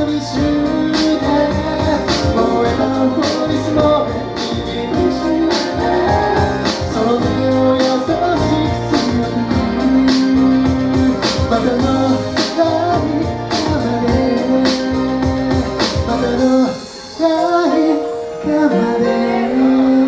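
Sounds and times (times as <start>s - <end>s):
bass line: 0.0s - 16.8s
keyboards: 0.0s - 20.0s
person singing: 0.0s - 20.0s
pop song: 0.0s - 20.0s
drum beat: 3.8s - 7.5s.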